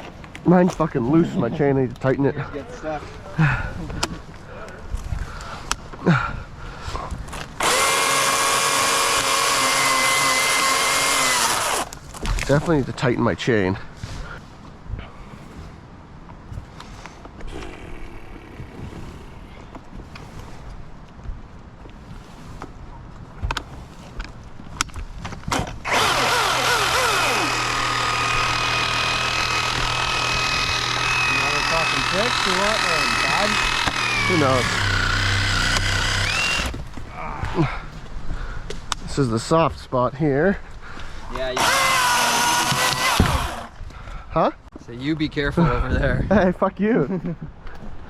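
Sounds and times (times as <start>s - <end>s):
electric chainsaw whining: 7.6s - 12.0s, 25.6s - 37.0s, 41.5s - 43.8s.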